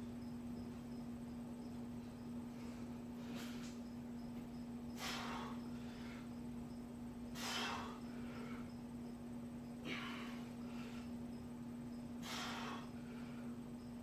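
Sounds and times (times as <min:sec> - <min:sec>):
steady low hum: 0:00.0 - 0:14.0
man breathing hard: 0:04.9 - 0:06.5, 0:07.3 - 0:08.9, 0:09.8 - 0:11.3, 0:12.1 - 0:13.8.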